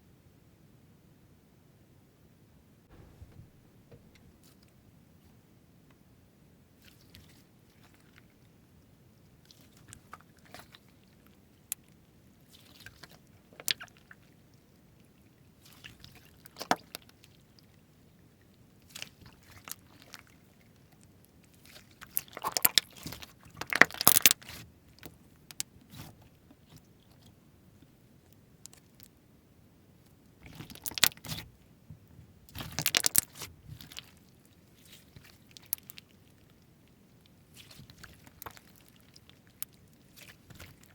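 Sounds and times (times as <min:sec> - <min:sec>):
slime clicking and crackling: 0:22.0 - 0:24.6, 0:30.4 - 0:31.4, 0:32.5 - 0:34.2.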